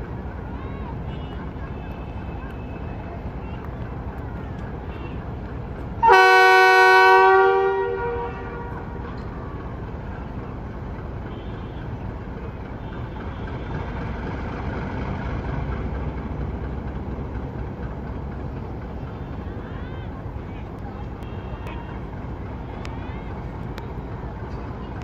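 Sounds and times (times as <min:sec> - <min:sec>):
diesel locomotive horn blast: 0:04.7 - 0:09.4, 0:11.0 - 0:14.1, 0:21.0 - 0:23.3.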